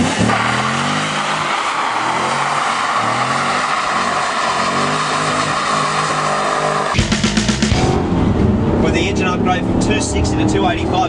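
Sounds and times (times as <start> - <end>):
tyres squealing: 0.0 - 7.0
car engine revving hard: 0.0 - 11.0.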